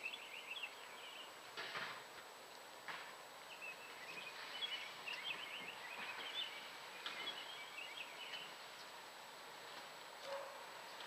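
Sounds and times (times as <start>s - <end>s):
small birds chirping: 0.0s - 1.5s, 3.4s - 9.2s
outdoor background noise: 0.0s - 11.0s.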